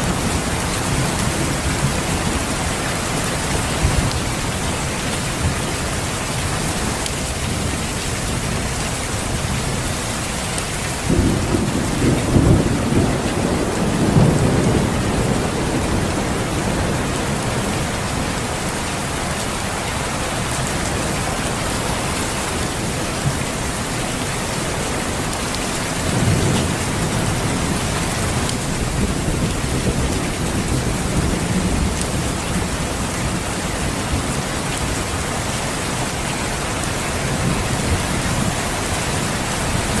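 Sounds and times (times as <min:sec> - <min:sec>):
steady rain: 0:00.0 - 0:40.0
rolling thunder: 0:10.9 - 0:18.3.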